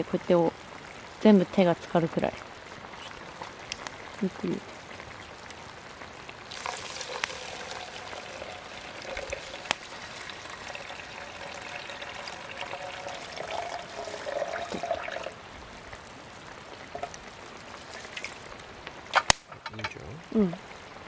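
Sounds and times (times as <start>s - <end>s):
water pouring into rice: 6.4s - 15.4s, 17.0s - 18.6s.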